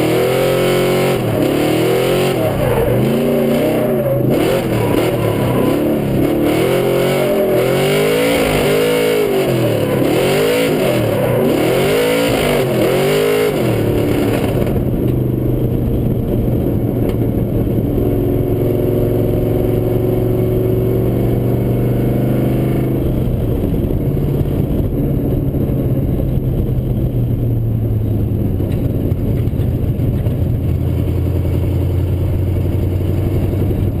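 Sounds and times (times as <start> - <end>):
car engine revving: 0.0 - 26.8.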